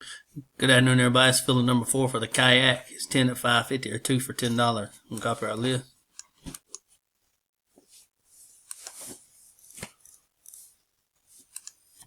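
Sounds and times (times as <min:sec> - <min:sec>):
computer mouse and keyboard clicks: 0:08.6 - 0:10.7, 0:11.4 - 0:12.0.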